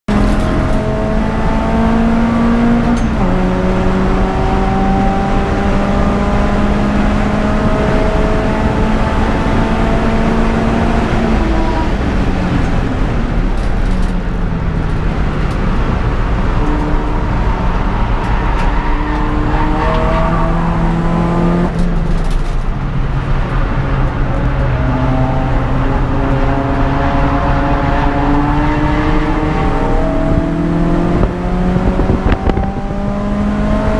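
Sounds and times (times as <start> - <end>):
car engine revving hard: 0.1 - 13.1, 15.4 - 21.8, 24.8 - 33.9
road and wind noise: 0.1 - 33.9.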